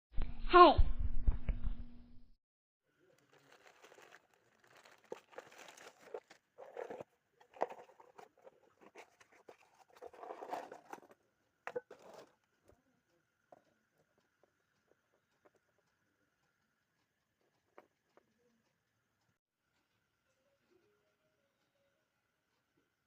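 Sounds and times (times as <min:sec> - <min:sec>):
packaging crinkling: 0:03.1 - 0:11.1
faint high tone: 0:20.3 - 0:22.2.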